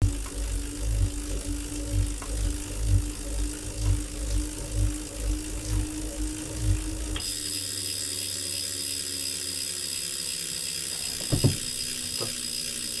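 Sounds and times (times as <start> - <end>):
bike trainer grinding hiss: 0.0 - 13.0
short knocks: 11.2 - 11.8.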